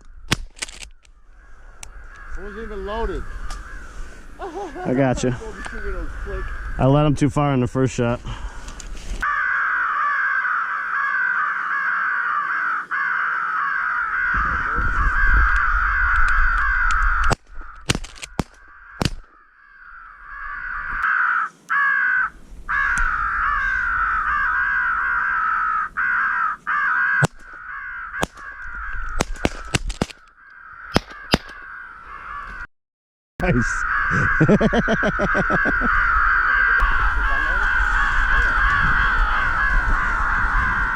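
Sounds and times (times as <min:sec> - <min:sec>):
crows cawing: 0:00.0 - 0:07.2, 0:08.3 - 0:32.7, 0:33.5 - 0:40.9
sharp clicks or knocks: 0:27.2 - 0:27.6, 0:29.2 - 0:30.3, 0:30.9 - 0:31.6.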